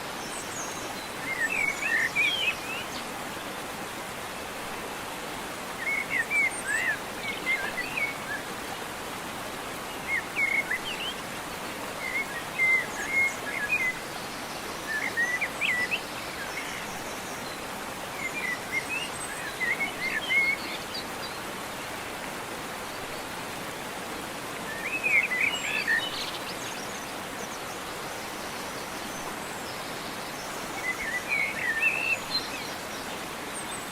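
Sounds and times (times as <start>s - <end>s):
steady background hiss: 0.0s - 33.9s
songbird chirping: 24.6s - 33.9s.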